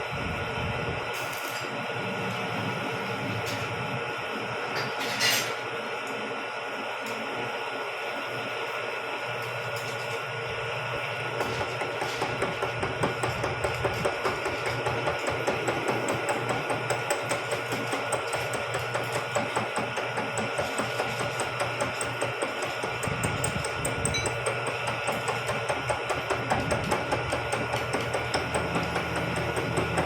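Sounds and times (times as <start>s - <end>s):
milling machine high whine: 0.0s - 30.0s
milling cutter knocking: 11.4s - 30.0s.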